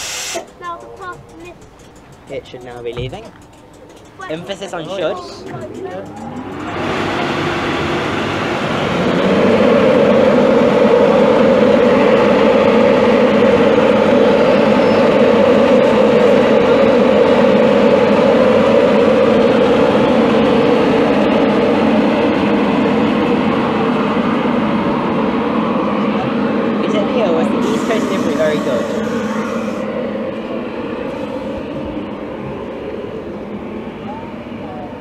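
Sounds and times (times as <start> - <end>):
train wheels rushing on rails: 0.0 - 35.0.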